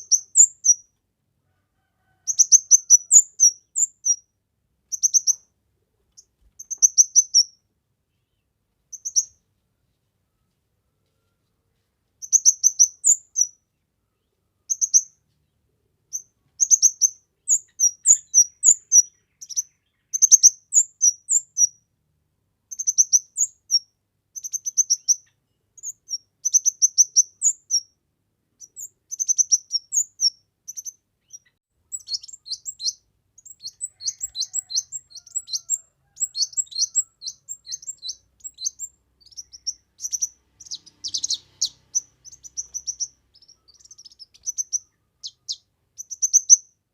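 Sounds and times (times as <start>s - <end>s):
bird chirping rapidly: 0.0s - 0.9s, 2.3s - 4.2s, 4.9s - 5.5s, 6.2s - 7.6s, 8.9s - 9.4s, 12.2s - 13.6s, 14.7s - 15.2s, 16.1s - 21.8s, 22.7s - 27.9s, 28.6s - 46.8s.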